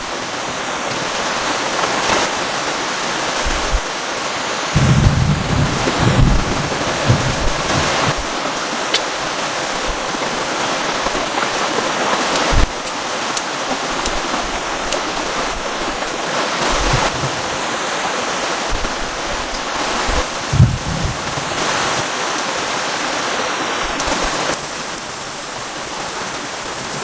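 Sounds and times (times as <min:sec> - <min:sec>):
heavy rain pouring: 0:00.0 - 0:27.0
strong wind: 0:02.2 - 0:22.2
wind buffeting microphone: 0:04.7 - 0:11.6, 0:18.7 - 0:22.1.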